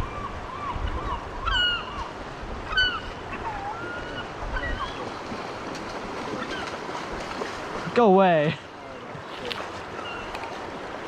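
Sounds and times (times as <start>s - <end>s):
gulls calling: 0.0s - 7.0s, 9.0s - 10.6s
river water rushing: 0.0s - 11.0s.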